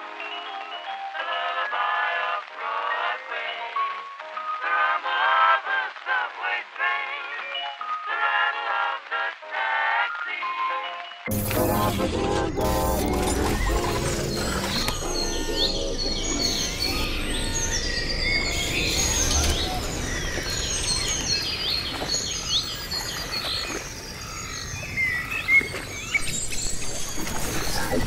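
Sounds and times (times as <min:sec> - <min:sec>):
birds chirping and singing: 0:13.1 - 0:28.0.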